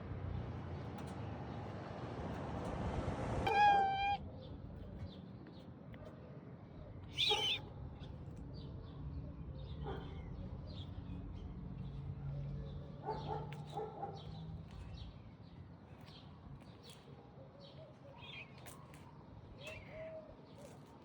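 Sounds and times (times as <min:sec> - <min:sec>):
cat meowing: 0:03.5 - 0:04.2.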